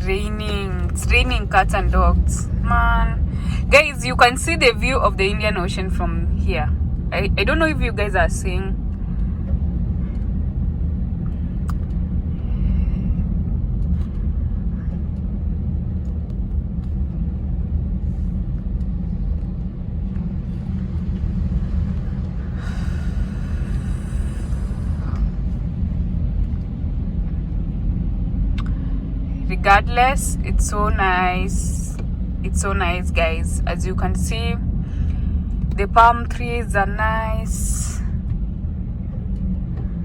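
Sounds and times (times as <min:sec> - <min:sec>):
car driving in heavy rain: 0:20.5 - 0:26.4.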